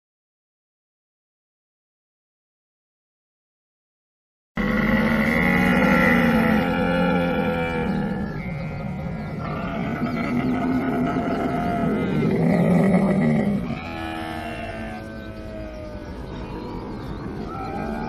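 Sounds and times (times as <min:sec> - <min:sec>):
camel calling: 0:04.6 - 0:18.0.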